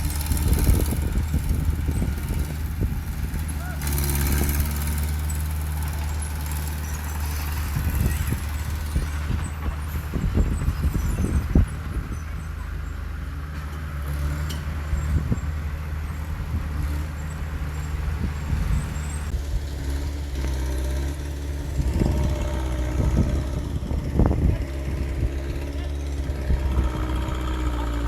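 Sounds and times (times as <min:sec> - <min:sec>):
diesel machinery running: 0:00.0 - 0:28.0.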